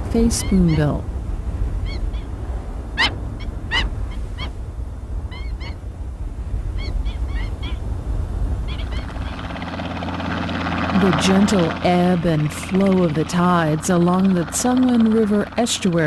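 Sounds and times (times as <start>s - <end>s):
birds chirping: 0.0s - 16.0s
low steady rumble: 0.0s - 16.0s
bird calls sweeping downward: 1.8s - 4.6s, 5.2s - 5.8s, 6.7s - 7.9s, 8.6s - 9.6s.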